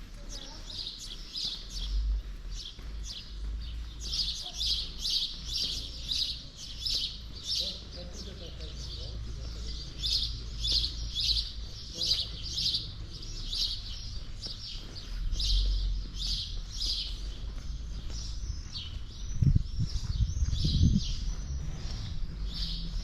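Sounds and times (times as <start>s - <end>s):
small birds chirping: 0.0s - 23.0s
low rumble: 19.2s - 23.0s.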